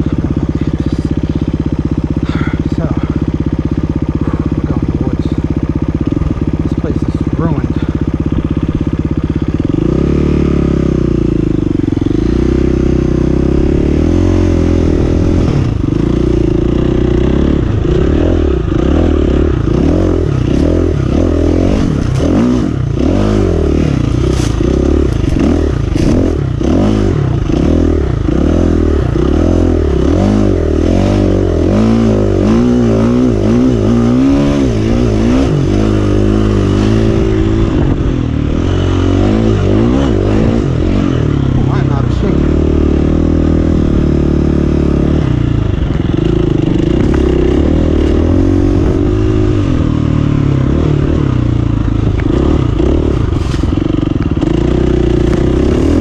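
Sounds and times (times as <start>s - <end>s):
dirt bike engine revving: 0.0s - 56.0s
sharp clattering knocks: 24.2s - 26.4s.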